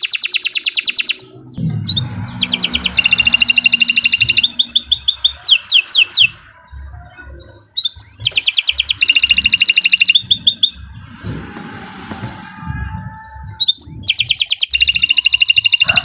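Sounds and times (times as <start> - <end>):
canary singing trills: 0.0 - 11.2, 12.8 - 16.0.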